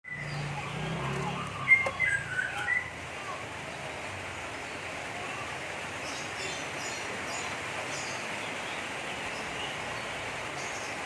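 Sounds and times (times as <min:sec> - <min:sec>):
bird harsh chirping: 0:00.1 - 0:03.4.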